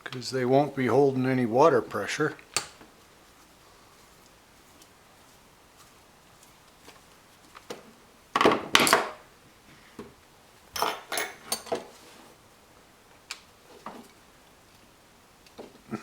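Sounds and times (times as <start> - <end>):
metal parts clattering on surface: 10.8 - 11.9.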